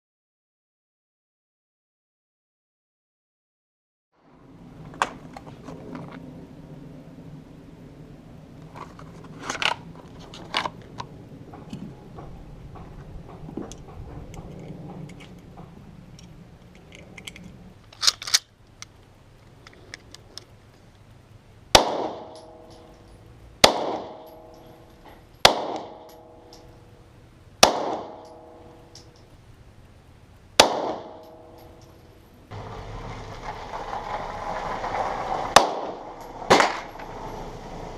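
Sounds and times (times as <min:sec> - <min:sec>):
gun handling clicks and knocks: 0:08.6 - 0:21.1, 0:28.2 - 0:29.4
gunshots with ringing tail: 0:21.7 - 0:23.0, 0:23.6 - 0:26.6, 0:27.6 - 0:29.0, 0:30.6 - 0:31.9, 0:35.5 - 0:37.0.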